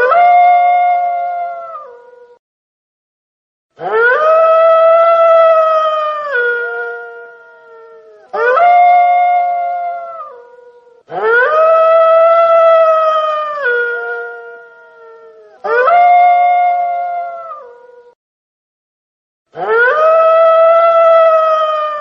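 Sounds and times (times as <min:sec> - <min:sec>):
wolf howling: 0:00.0 - 0:02.4, 0:03.8 - 0:18.2, 0:19.6 - 0:22.0.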